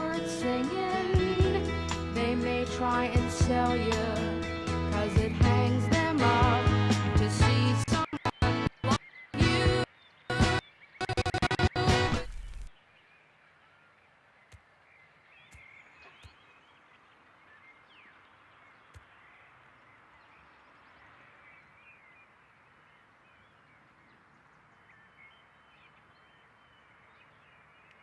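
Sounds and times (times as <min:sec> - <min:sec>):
distant birds chirping: 0:07.2 - 0:28.0.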